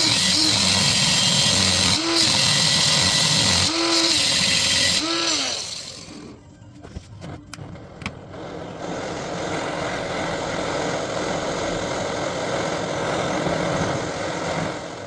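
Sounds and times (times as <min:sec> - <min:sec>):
steady machine noise: 0:00.0 - 0:06.4.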